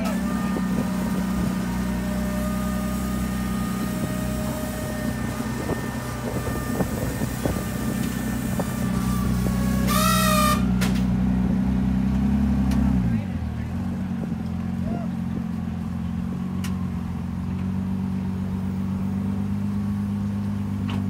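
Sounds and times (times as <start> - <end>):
high wavering squeal: 0.0 - 10.8
vehicle engine idling: 0.0 - 21.0.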